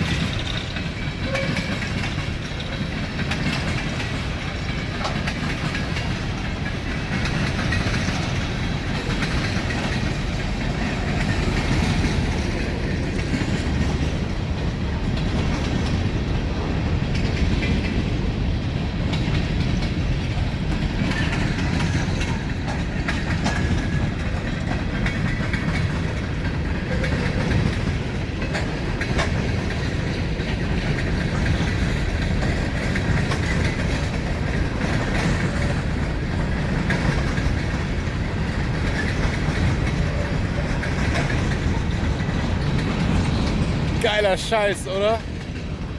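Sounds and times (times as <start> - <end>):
wheels clicking over rail joints: 0.0 - 45.9
wheels rumbling on rail: 0.0 - 45.9.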